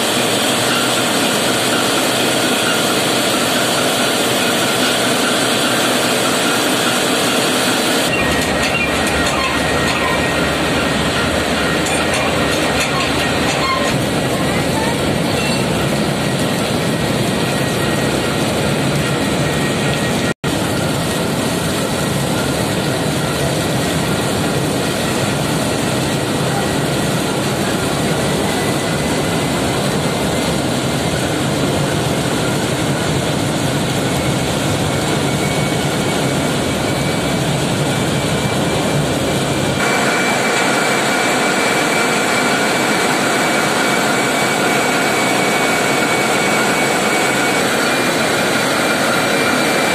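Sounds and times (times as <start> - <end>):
whining tones: 0.0 - 20.3, 34.2 - 49.9
diesel engines running: 0.0 - 49.9.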